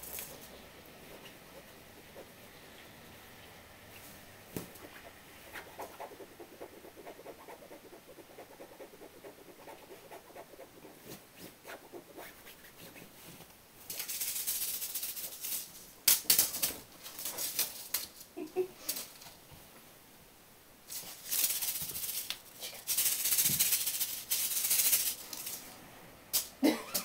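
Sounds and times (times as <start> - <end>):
sugar grains rattling: 13.9 - 15.8, 20.9 - 25.7.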